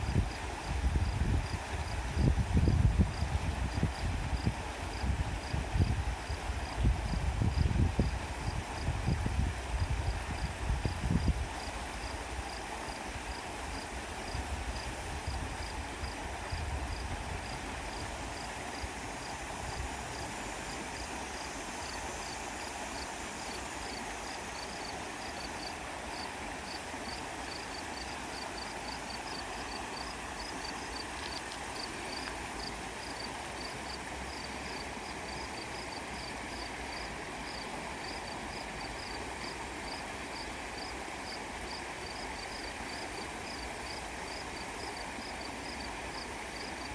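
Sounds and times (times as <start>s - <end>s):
wind rumble on microphone: 0.0s - 12.5s, 14.2s - 20.3s
flowing creek water: 0.0s - 46.9s.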